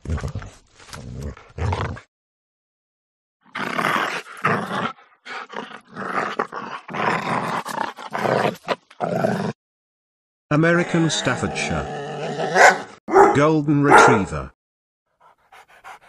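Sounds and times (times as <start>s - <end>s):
dog growling and snarling: 0.0s - 2.1s, 3.4s - 9.6s, 11.2s - 13.3s, 15.2s - 16.0s.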